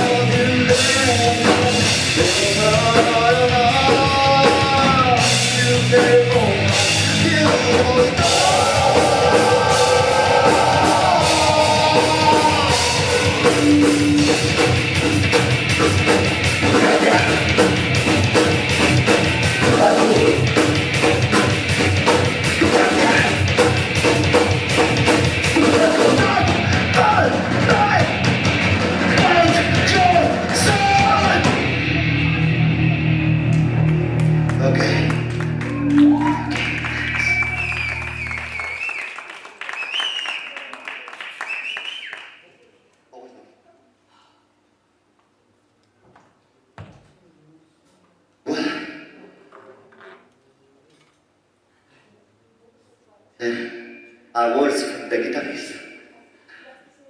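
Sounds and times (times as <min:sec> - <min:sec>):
person singing: 0:00.0 - 0:14.6, 0:19.5 - 0:20.6, 0:22.5 - 0:23.5
distorted electric guitars: 0:00.0 - 0:38.8
drum kit: 0:00.0 - 0:38.8.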